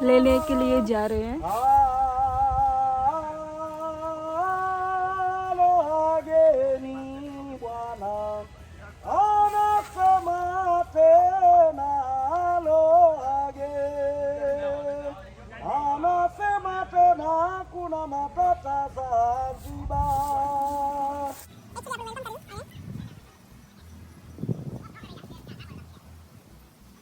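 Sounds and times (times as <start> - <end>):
man singing: 0.0 - 21.5.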